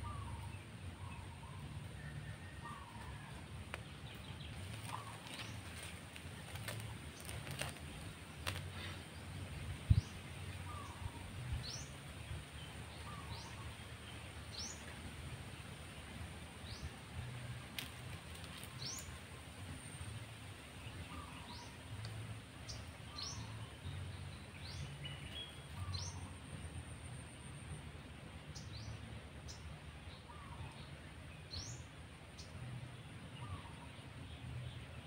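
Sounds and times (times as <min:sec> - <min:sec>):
bird chirping: 0:00.0 - 0:15.0, 0:16.6 - 0:27.8
low steady rumble: 0:00.0 - 0:35.0.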